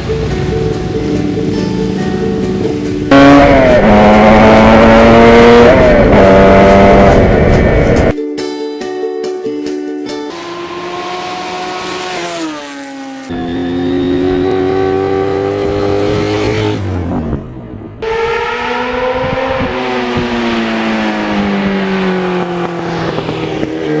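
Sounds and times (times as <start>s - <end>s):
motorcycle engine running: 0.0s - 8.2s, 19.5s - 24.0s.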